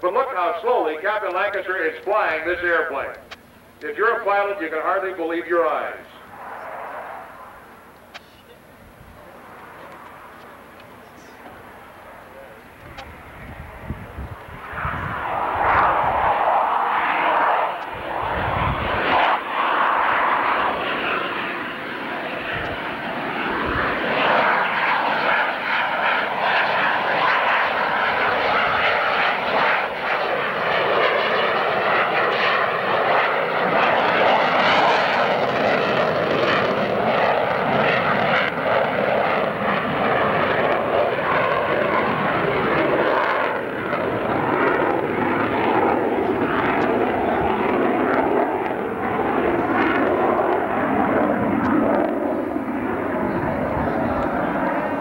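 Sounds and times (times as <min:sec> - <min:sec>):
fighter jet flying past: 0:03.8 - 0:55.0.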